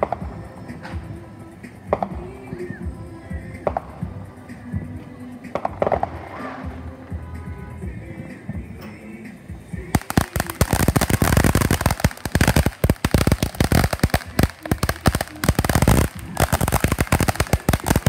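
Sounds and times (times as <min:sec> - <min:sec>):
fireworks cracking and popping: 0:09.8 - 0:18.0.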